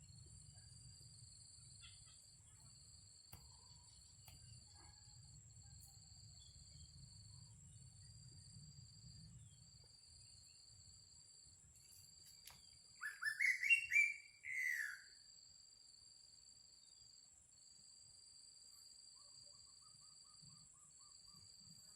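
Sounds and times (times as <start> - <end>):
bird calling: 13.0 - 15.1.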